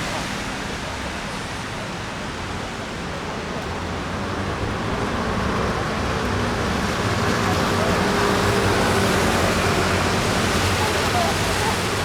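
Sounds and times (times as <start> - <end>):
wet traffic: 0.0 - 12.0.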